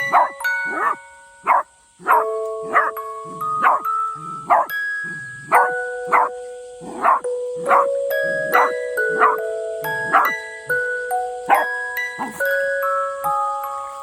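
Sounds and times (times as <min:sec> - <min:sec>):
dog barking: 0:00.0 - 0:03.0, 0:03.6 - 0:07.9, 0:08.5 - 0:09.4, 0:10.0 - 0:10.3, 0:11.5 - 0:12.4
background music with held notes: 0:00.0 - 0:14.0.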